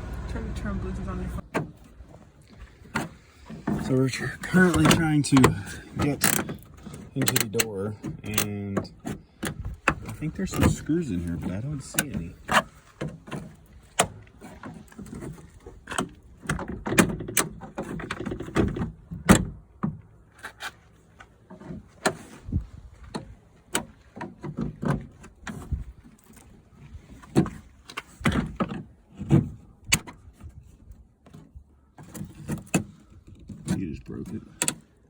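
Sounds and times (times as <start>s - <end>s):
tools clicking and rattling on trim: 3.6s - 14.2s.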